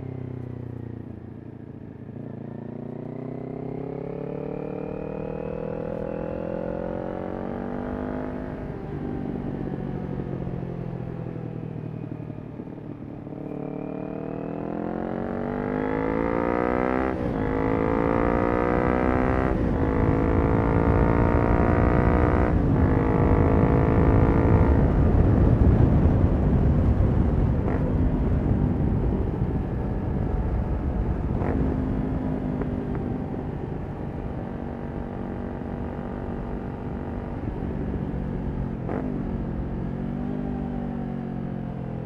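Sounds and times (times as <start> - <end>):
motorcycle engine revving: 2.0 - 9.5, 13.2 - 42.0
wind rush: 19.5 - 32.5.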